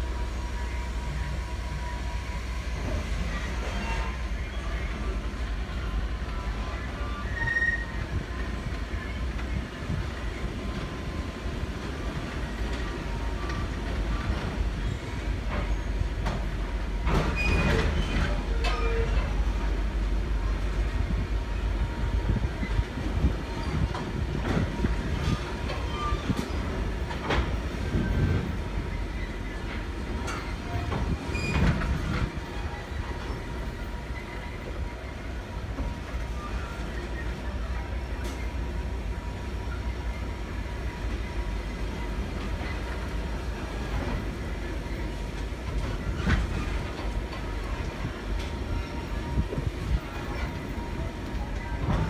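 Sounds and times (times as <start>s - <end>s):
train rumbling on rails: 0.0s - 52.0s.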